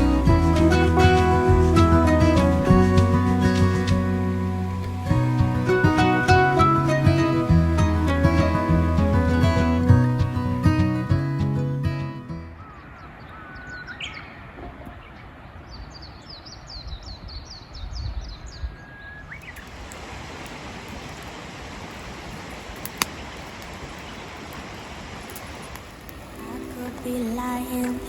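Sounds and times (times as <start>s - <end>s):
steady hiss: 0.0s - 9.3s, 19.4s - 28.0s
birds whistling and chirping: 12.6s - 19.6s
sharp clicks: 22.6s - 23.7s.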